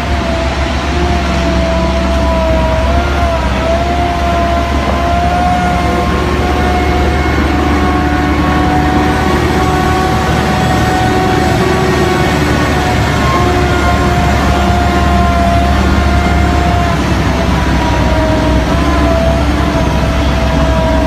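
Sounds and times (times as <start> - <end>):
heavy truck engine rumbling: 0.0 - 21.0
high engine whine: 0.0 - 21.0.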